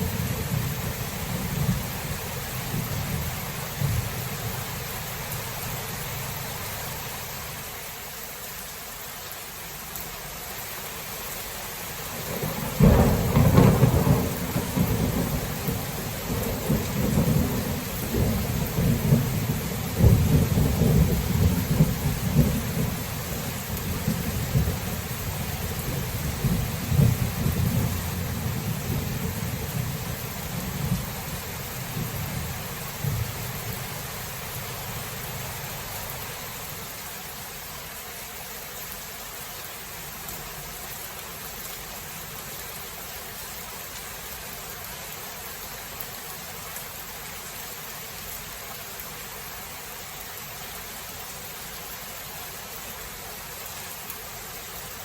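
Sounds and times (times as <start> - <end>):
thunder rumbling: 0.0 - 4.6, 12.2 - 36.4
heavy rain: 0.0 - 55.0.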